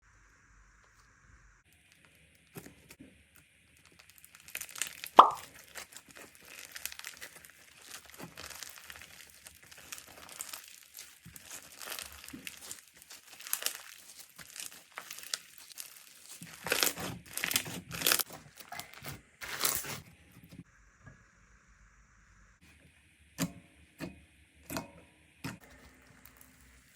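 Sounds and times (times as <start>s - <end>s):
slime squelches: 3.7s - 19.0s
slime clicking and popping: 3.9s - 18.2s.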